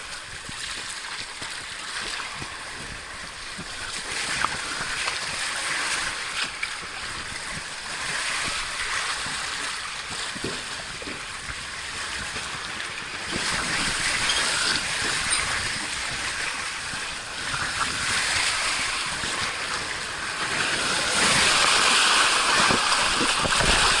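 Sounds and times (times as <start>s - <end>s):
water rushing down a slide: 0.0s - 24.0s.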